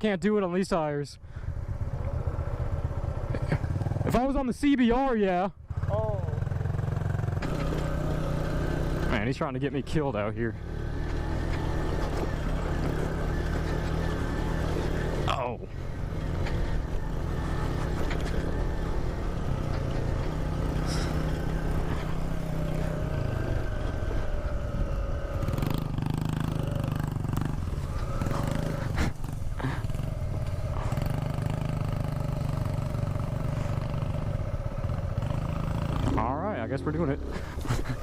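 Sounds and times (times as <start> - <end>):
motorcycle engine running: 1.2 - 4.4, 5.0 - 38.0.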